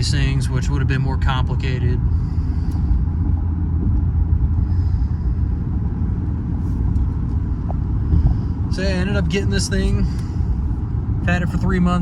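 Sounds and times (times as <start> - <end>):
car engine rumble inside cabin: 0.0 - 12.0.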